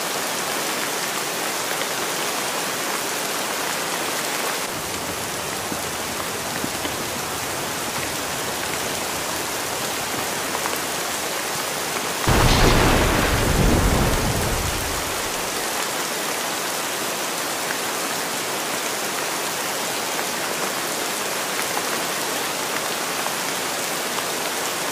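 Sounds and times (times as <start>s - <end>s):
steady rain hiss: 0.0s - 24.9s
thunder clap rumbling: 12.3s - 15.6s.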